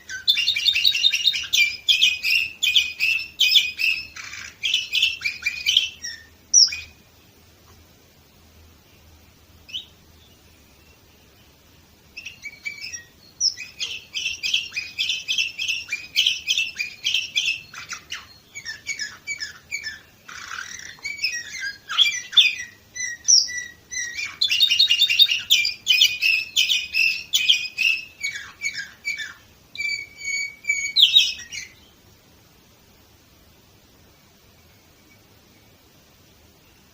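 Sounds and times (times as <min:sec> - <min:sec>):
canary singing trills: 0:00.0 - 0:07.3, 0:08.7 - 0:32.1.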